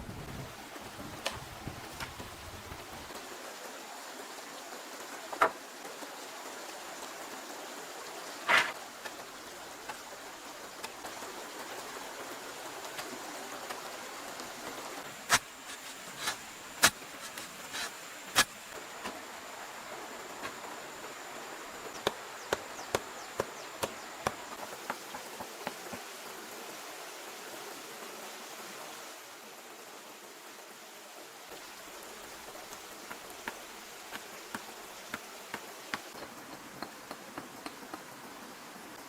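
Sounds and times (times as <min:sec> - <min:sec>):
steady hiss: 0:00.0 - 0:39.0.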